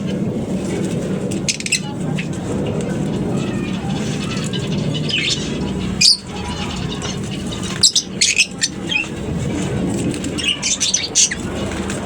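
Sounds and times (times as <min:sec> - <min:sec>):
low background hum: 0:00.0 - 0:12.0
lovebirds chirping shrilly: 0:03.0 - 0:09.2, 0:10.2 - 0:11.6.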